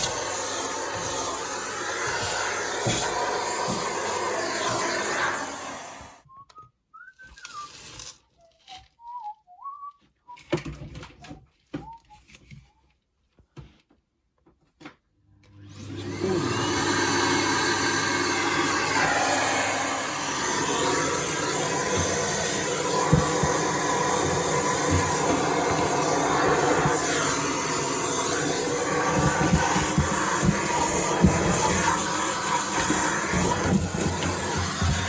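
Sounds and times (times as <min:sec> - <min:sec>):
vacuum cleaner running: 0:00.0 - 0:06.2, 0:15.4 - 0:35.0.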